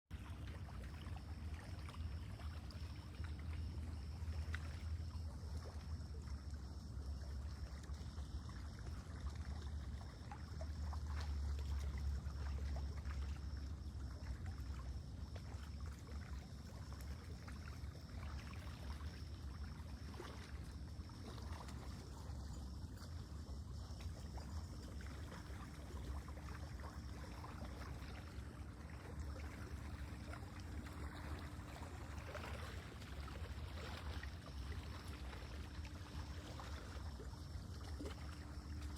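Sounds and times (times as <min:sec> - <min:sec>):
water lapping at shore: 0:00.1 - 0:38.9.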